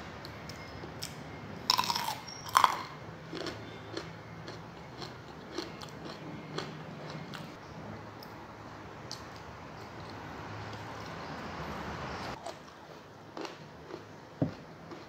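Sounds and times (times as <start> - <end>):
cucumber being chewed crunchily: 0.6 - 7.6, 12.4 - 15.0.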